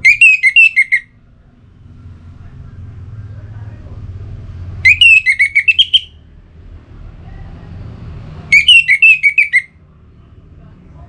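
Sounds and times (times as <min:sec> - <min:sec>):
thrush whistled song: 0:00.0 - 0:01.2, 0:04.8 - 0:06.2, 0:08.5 - 0:09.8.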